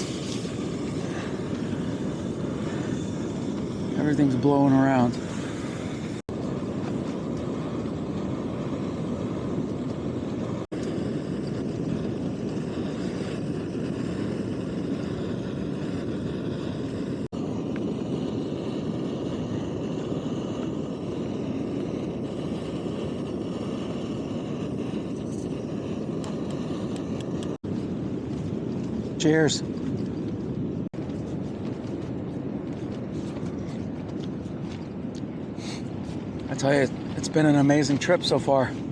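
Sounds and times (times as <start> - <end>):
stove burner roaring: 0.0 - 38.9.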